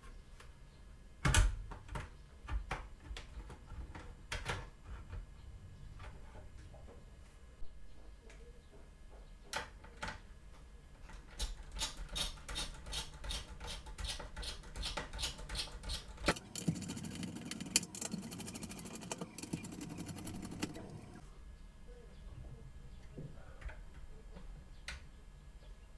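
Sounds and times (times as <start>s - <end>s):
electric screwdriver motor running: 16.3s - 21.2s
sharp clicks: 16.3s - 21.2s
steady clicking: 16.3s - 21.2s.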